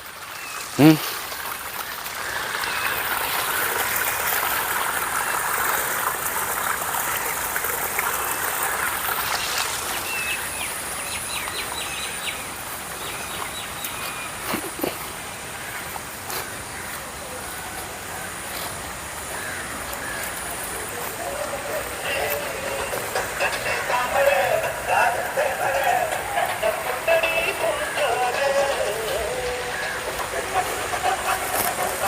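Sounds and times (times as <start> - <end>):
steady rushing noise: 19.8 - 32.0.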